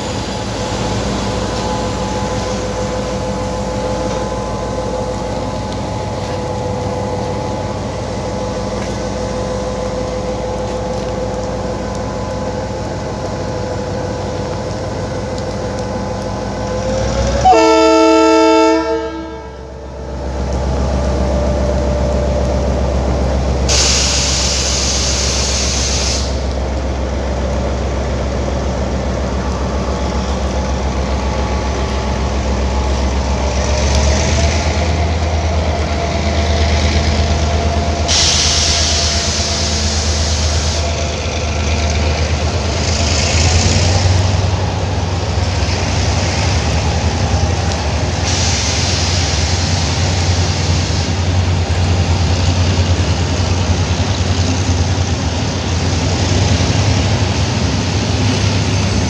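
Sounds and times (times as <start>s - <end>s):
train rumbling past: 0.0s - 59.0s
locomotive horn: 16.5s - 19.9s
hiss: 23.7s - 26.8s, 36.3s - 41.3s, 47.7s - 54.9s.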